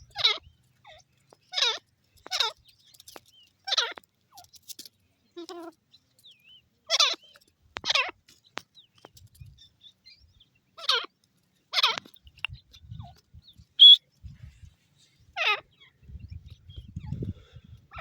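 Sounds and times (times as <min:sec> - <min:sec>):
harsh bird call notes: 0:13.8 - 0:14.0
high whistle: 0:13.8 - 0:14.0.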